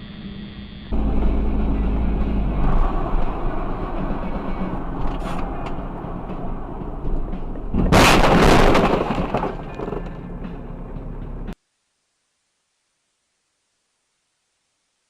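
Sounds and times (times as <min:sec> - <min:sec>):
vehicle road noise: 0:00.9 - 0:11.6
sudden loud crash: 0:02.5 - 0:10.1.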